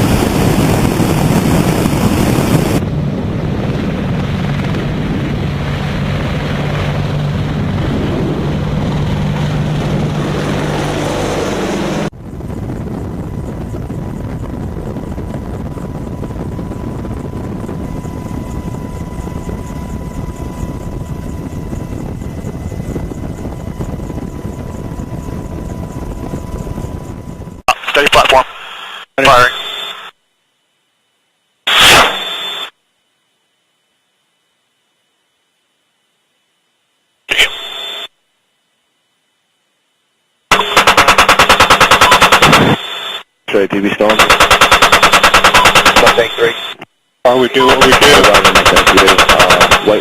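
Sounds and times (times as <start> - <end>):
helicopter rotor and engine: 0.0 - 28.3, 40.5 - 50.0.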